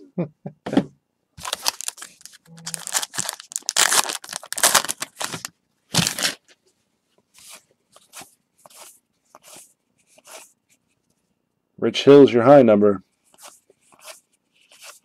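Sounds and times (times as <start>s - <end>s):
foil wrapper tearing and crinkling: 1.4s - 6.4s
cards rustling in hands: 1.4s - 6.6s, 13.3s - 15.0s.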